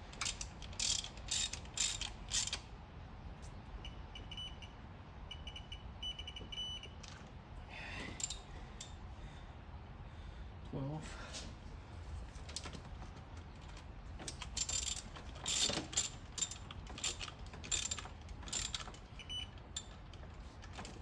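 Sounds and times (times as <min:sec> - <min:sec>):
ratchet wrench clicking: 0:00.1 - 0:02.6, 0:08.2 - 0:08.4, 0:14.3 - 0:19.1.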